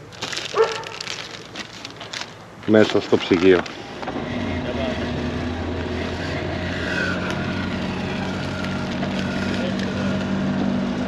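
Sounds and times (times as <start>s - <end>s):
car engine running: 3.2s - 11.0s.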